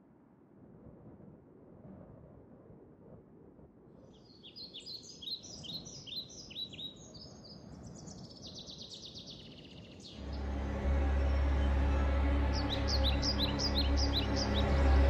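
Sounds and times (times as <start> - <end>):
birds chirping and trilling: 8.9 - 15.0
loud low droning: 10.2 - 15.0.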